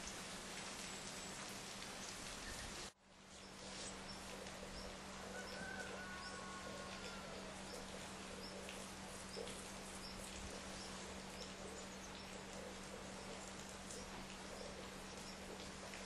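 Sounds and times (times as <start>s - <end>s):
steady rain hissing: 0.0s - 16.0s.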